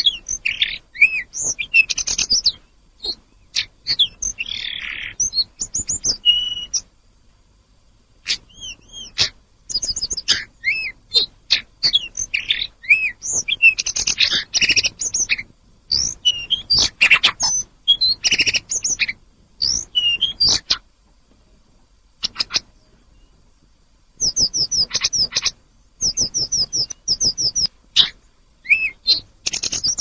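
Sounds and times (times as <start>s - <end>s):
songbird singing: 0.0s - 30.0s.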